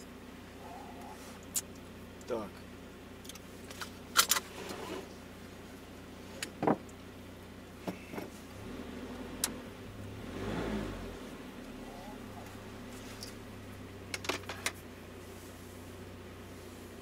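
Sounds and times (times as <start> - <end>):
steady low hum: 0.0 - 17.0
knock in car cab: 6.6 - 6.8
car engine revving: 8.0 - 17.0.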